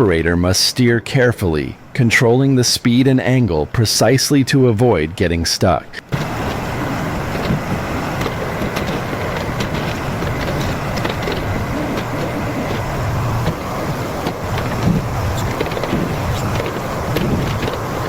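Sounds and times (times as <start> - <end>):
excavator diesel engine running: 6.1 - 18.0.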